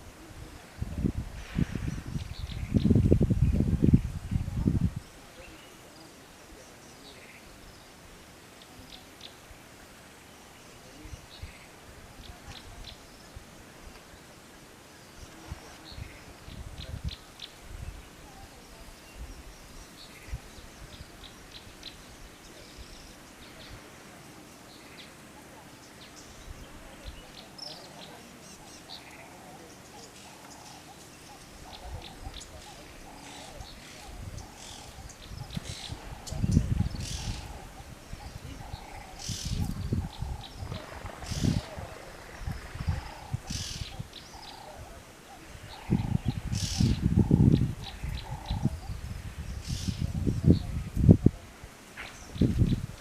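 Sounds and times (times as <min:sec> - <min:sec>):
background hiss: 0:00.0 - 0:53.0
birds chirping: 0:01.5 - 0:53.0
bird warbling chatter: 0:27.4 - 0:48.9.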